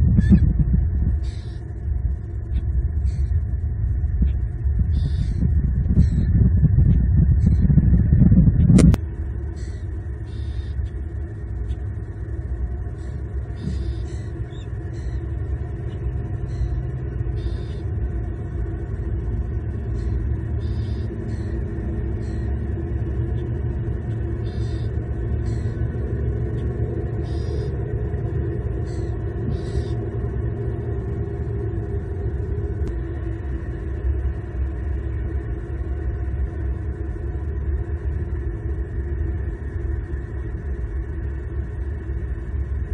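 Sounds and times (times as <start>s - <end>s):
distant road traffic rumble: 0.0s - 42.9s.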